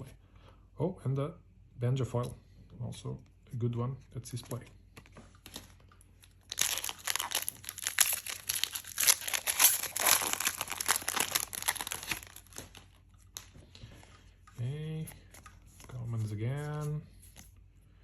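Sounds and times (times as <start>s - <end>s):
plastic wrapper tearing and crinkling: 5.5s - 13.5s.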